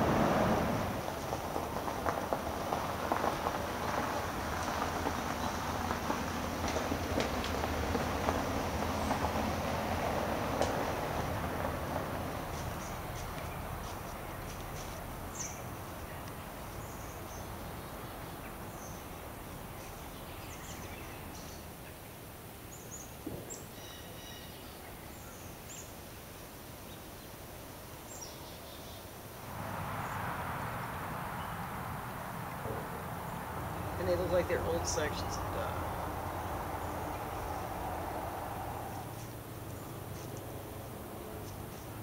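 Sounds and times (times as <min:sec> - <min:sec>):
outdoor hiss: 0:00.0 - 0:42.0
small birds chirping: 0:12.5 - 0:26.0, 0:38.8 - 0:42.0.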